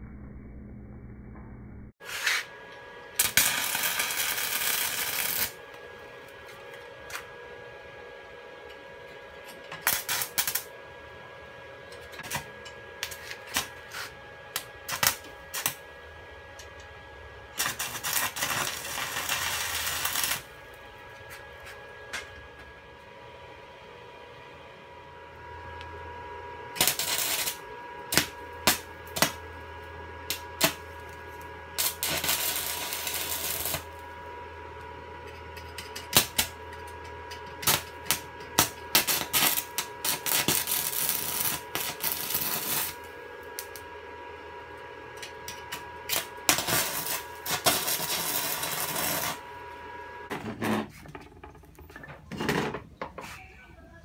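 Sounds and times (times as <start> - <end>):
steady hum: 0.0 - 54.0
welding arc crackle: 3.1 - 5.8, 9.8 - 10.7, 12.2 - 15.9, 17.5 - 21.7, 26.7 - 34.3, 35.8 - 43.9, 45.2 - 49.6.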